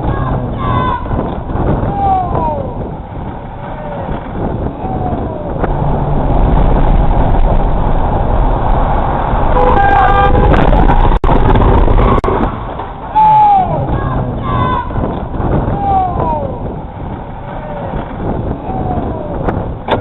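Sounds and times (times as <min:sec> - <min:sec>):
car road and engine noise: 0:00.0 - 0:20.0
car horn blasts: 0:09.6 - 0:10.8.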